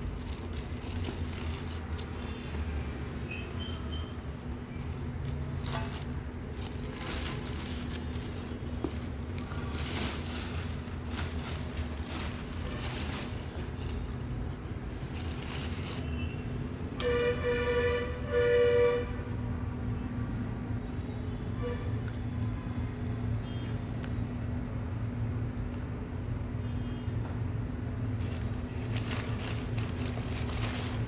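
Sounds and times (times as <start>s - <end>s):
short horn blasts: 17.0s - 19.3s.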